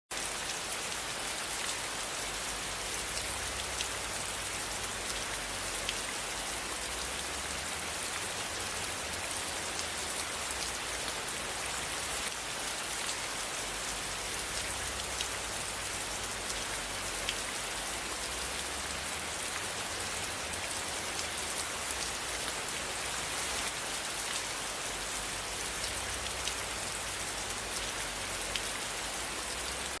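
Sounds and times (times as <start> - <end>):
rain falling: 0.1 - 30.0.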